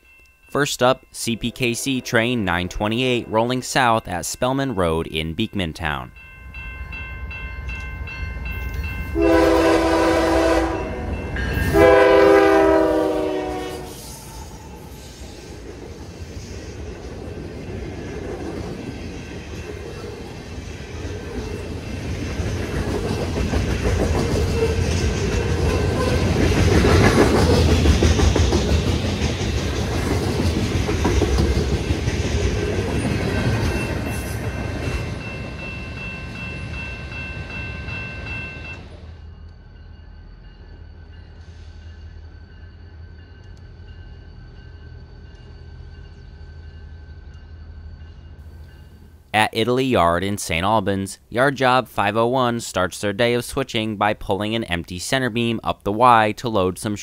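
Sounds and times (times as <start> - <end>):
crossing bell ringing: 0.0 - 13.8, 23.9 - 26.4, 31.7 - 49.3
freight train cars rumbling past: 0.0 - 50.6
train horn blasts: 9.2 - 14.2.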